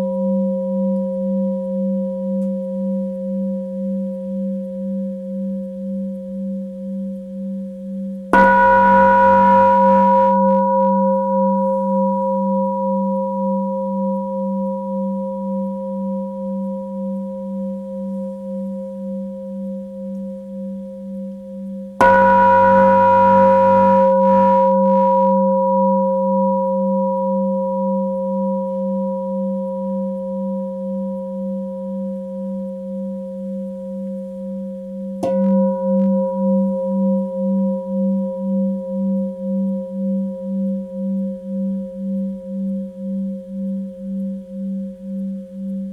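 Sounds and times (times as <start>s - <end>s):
singing bowl ringing: 8.4s - 16.0s, 22.0s - 29.8s, 35.2s - 38.4s.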